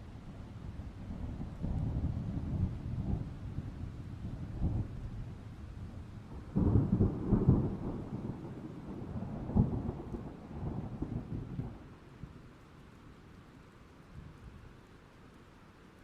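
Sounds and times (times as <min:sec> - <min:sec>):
steady rain: 0:00.0 - 0:16.0
thunder rolling: 0:06.3 - 0:11.8.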